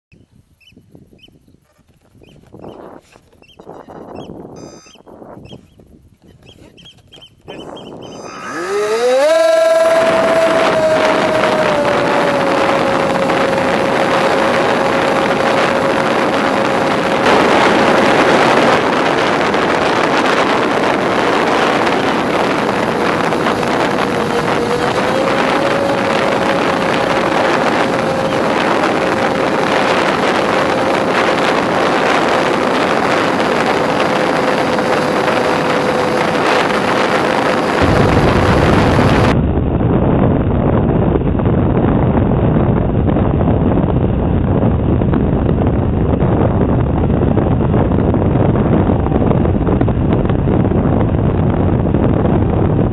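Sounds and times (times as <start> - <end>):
wind rushing over microphone: 0.1 - 52.9
electric motors and propellers running: 1.8 - 39.4.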